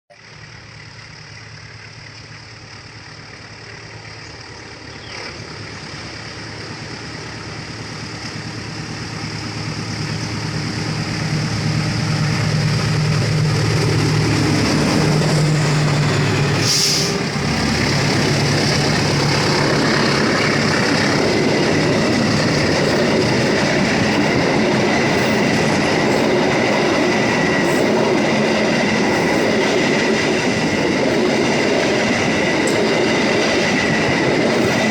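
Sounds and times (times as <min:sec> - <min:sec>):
train engine drone: 0:00.1 - 0:34.9
wheels rumbling on rails: 0:00.1 - 0:34.9
high wheel squeal: 0:13.9 - 0:21.0
brief hiss: 0:16.6 - 0:17.2.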